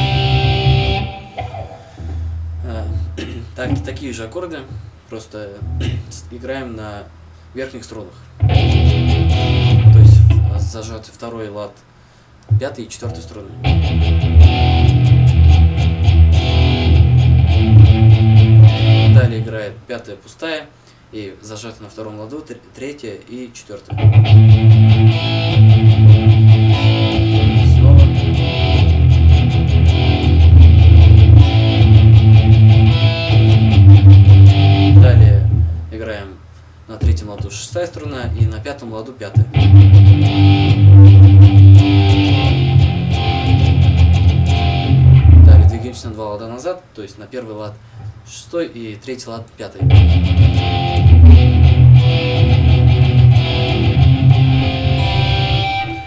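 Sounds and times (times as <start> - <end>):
guitar strumming chords: 0.0 - 4.1, 5.6 - 6.3, 8.4 - 10.8, 13.5 - 19.5, 23.9 - 35.9, 39.4 - 46.0, 49.8 - 56.0.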